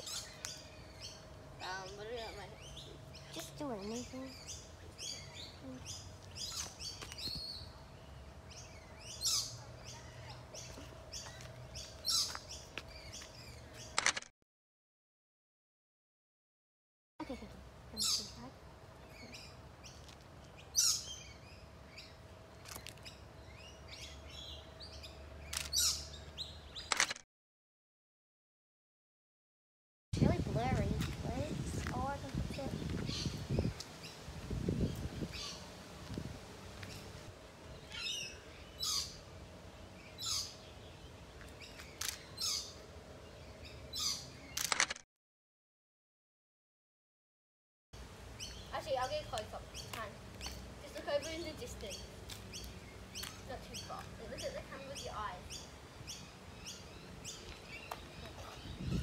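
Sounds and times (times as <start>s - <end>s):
birds chirping: 0.0s - 14.0s, 17.2s - 27.0s, 30.2s - 44.8s, 48.0s - 59.0s
quick run of clicks: 44.6s - 45.0s.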